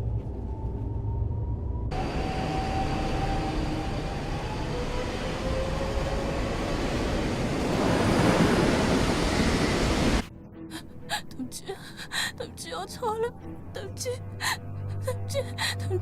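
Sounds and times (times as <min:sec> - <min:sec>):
train rumbling on tracks: 0:00.0 - 0:10.3.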